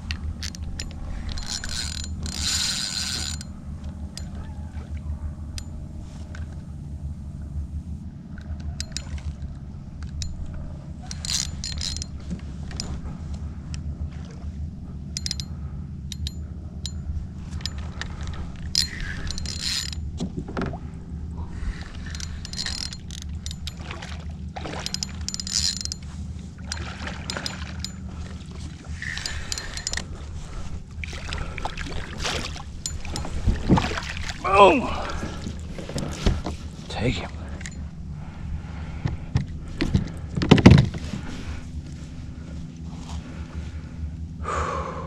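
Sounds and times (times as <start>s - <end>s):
mechanical clicking and creaking: 0.0s - 4.4s, 8.4s - 13.0s, 15.2s - 15.5s, 16.1s - 20.6s, 21.7s - 23.8s, 24.8s - 26.1s, 26.7s - 28.1s, 28.9s - 30.1s, 37.5s - 37.9s
low hum: 0.0s - 45.0s
water splashes: 23.7s - 24.9s, 26.7s - 29.4s, 31.0s - 35.8s.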